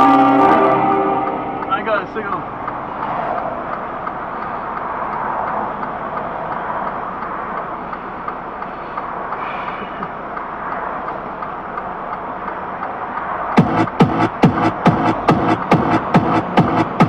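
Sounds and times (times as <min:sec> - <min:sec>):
brief higher tone: 0:00.0 - 0:02.2
vehicle road and engine noise: 0:00.0 - 0:17.0
faint regular ticking: 0:01.6 - 0:09.4, 0:10.0 - 0:15.2.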